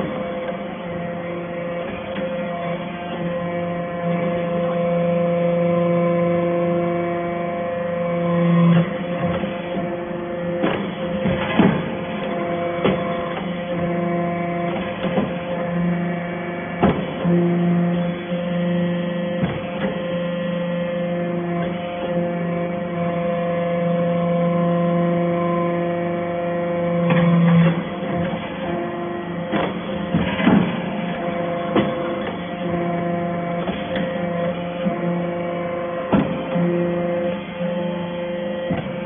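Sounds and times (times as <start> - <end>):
baler motor humming: 0.0 - 39.0
sharp knocks: 10.6 - 12.0, 36.1 - 36.6.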